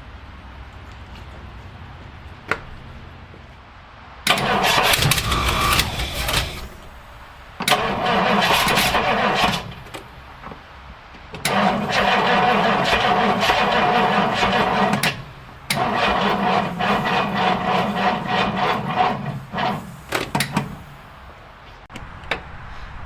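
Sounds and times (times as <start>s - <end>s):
car engine cranking: 4.2s - 10.7s, 11.3s - 21.2s.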